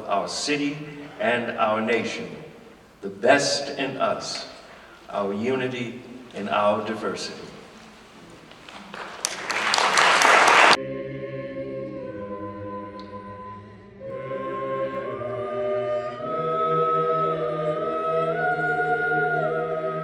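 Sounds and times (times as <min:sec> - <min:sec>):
applause: 0:07.6 - 0:10.8.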